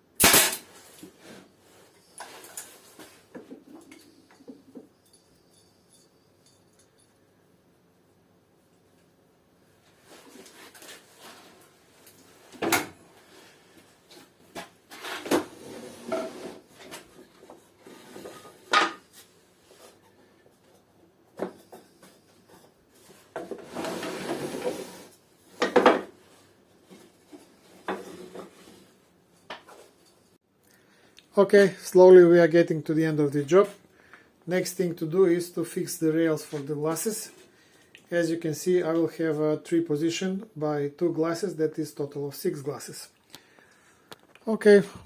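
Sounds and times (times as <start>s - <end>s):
scraping and rustling: 21.6s - 30.4s.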